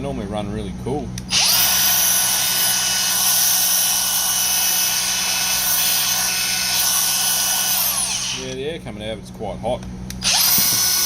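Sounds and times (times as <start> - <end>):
angle grinder high whine: 1.3 - 8.6, 10.2 - 11.0.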